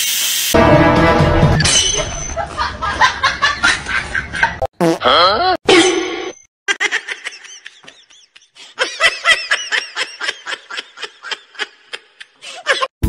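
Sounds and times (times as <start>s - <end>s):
person giggling: 4.4s - 5.6s, 6.7s - 12.9s.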